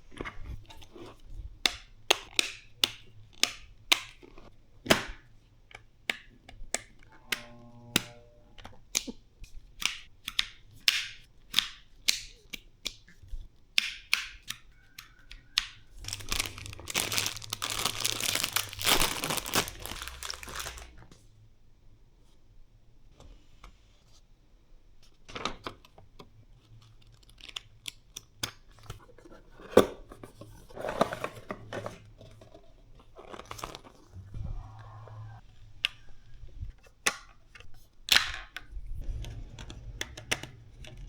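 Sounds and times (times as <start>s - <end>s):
wrapping rustling and tearing: 16.0s - 21.1s, 26.7s - 28.1s.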